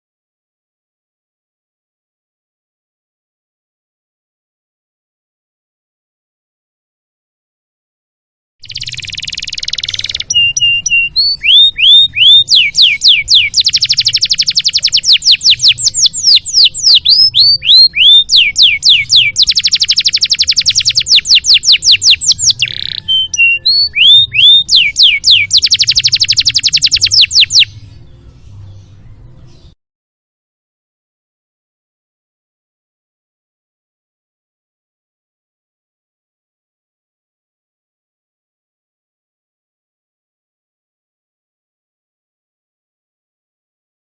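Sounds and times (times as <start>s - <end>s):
canary singing: 8.6s - 29.8s.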